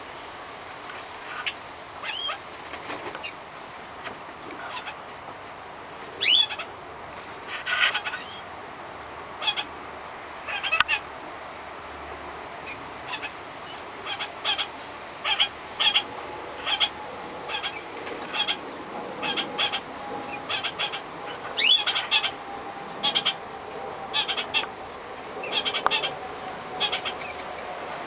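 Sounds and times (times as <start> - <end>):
faint steady hum: 0.0 - 28.0
birds chirping: 4.5 - 6.7, 12.6 - 28.0.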